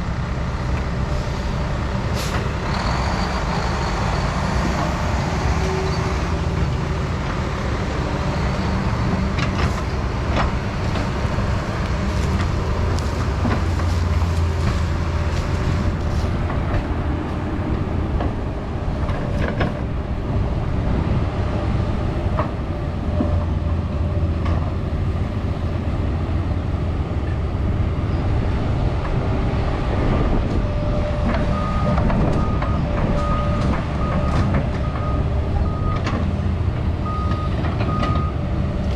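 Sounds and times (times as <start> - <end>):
excavator diesel engine revving: 0.0 - 38.9
excavator bucket clanking: 9.2 - 17.5.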